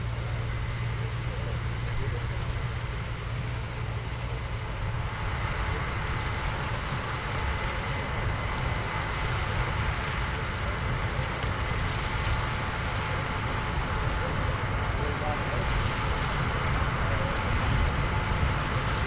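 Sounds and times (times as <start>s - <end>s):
combine harvester engine rumble: 0.0s - 19.0s
faint steady whine: 0.0s - 19.0s.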